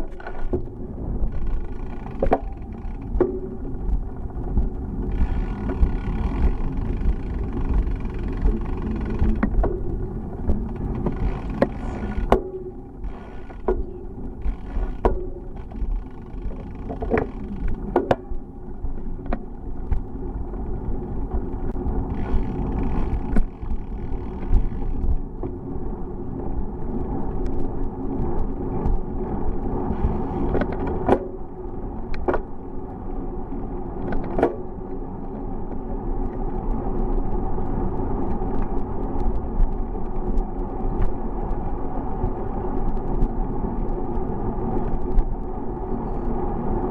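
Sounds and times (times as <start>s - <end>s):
sharp clicks and knocks: 0.0s - 25.7s, 27.3s - 31.4s, 32.1s - 32.6s
tyres rumbling on road: 0.0s - 46.9s.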